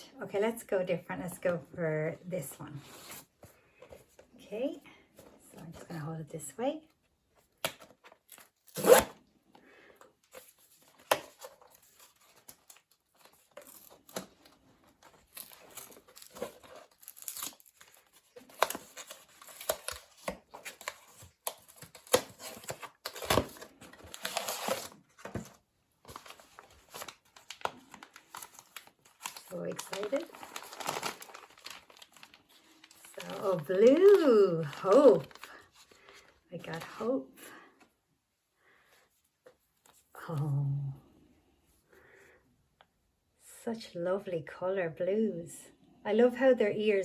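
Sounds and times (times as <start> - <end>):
packaging rustling: 10.2 - 36.9
packaging being torn open: 15.2 - 25.4, 26.1 - 35.6.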